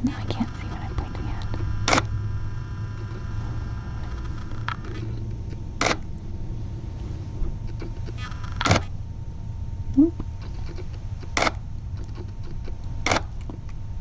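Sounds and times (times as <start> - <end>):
steady low hum: 0.0 - 14.0
camera shutter clicks: 1.9 - 2.1, 5.8 - 6.1.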